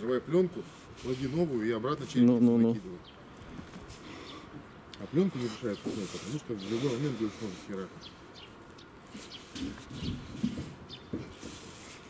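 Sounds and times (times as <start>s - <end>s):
bird chirps: 8.0s - 10.2s, 10.8s - 11.2s.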